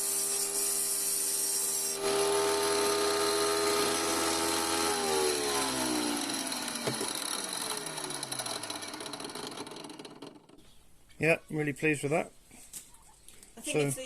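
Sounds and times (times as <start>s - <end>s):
saw motor spinning down: 0.0s - 10.6s.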